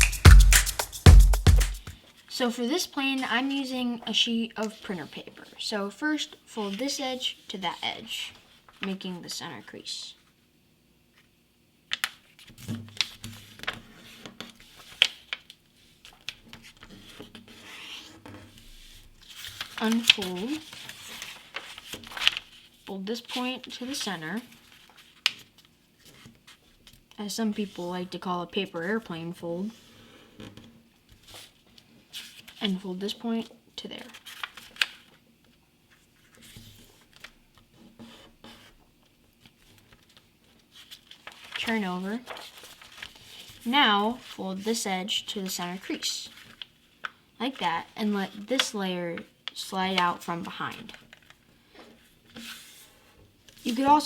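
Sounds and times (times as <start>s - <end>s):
paper being folded and creased: 11.9s - 27.0s, 34.0s - 35.2s, 39.4s - 43.6s, 48.3s - 51.4s, 52.0s - 54.0s.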